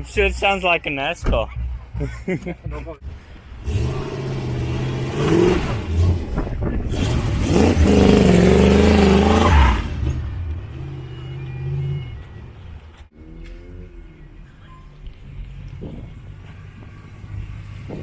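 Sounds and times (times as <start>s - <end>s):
car engine revving past: 3.6s - 12.1s.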